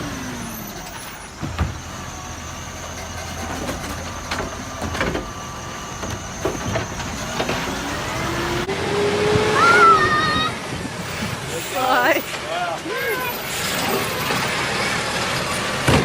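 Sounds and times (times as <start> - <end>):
garbage truck engine idling: 0.0 - 8.7
knocks and clanks: 0.8 - 2.0, 2.8 - 8.0, 15.5 - 16.0.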